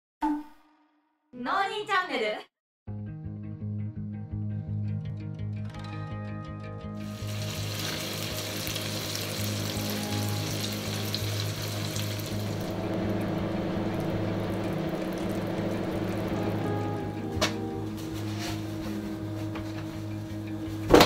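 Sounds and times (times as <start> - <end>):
background music: 2.9 - 21.0
chicken sizzling in a pan: 7.1 - 12.6.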